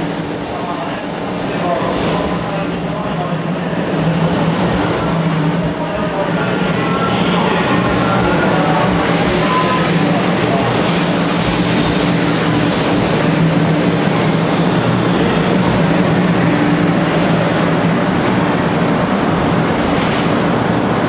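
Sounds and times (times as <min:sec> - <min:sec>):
train rolling rumble: 0:00.0 - 0:21.0.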